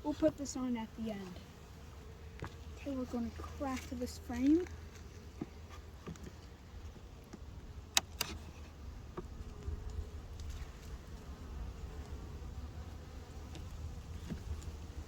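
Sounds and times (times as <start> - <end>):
honeybees buzzing: 0.0 - 15.0
hive tool cracking frame loose: 7.9 - 8.4.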